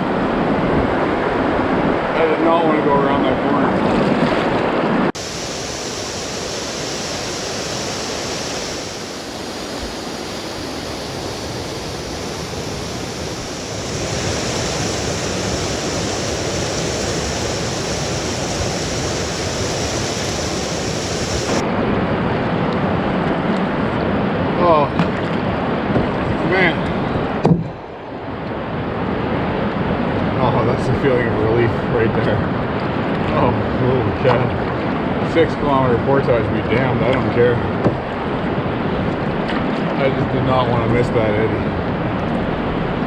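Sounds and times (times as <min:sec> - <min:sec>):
river rapids rushing: 0:05.2 - 0:21.6.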